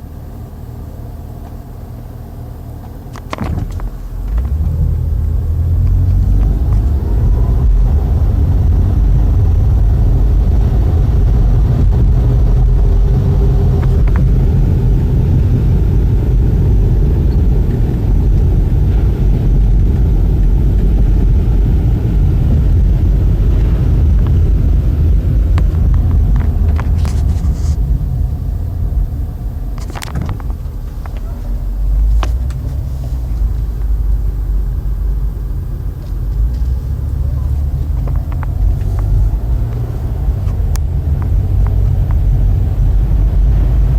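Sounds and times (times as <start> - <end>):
car road and engine rumble: 0.0 - 43.9.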